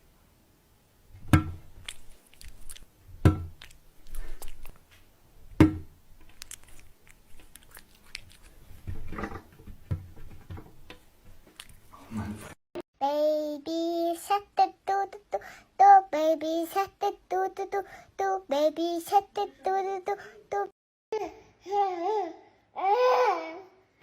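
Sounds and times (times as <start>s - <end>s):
loud sharp knocks: 5.6s - 5.9s.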